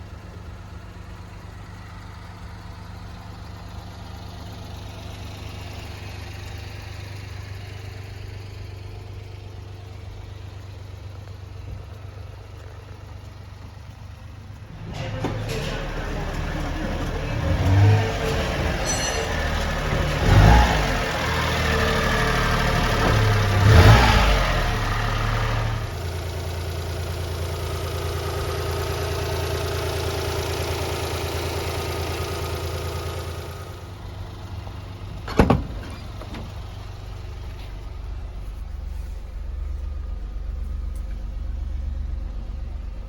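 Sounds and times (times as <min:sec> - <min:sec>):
small engine revving and idling: 0:00.0 - 0:43.0
sharp thump: 0:35.3 - 0:36.5.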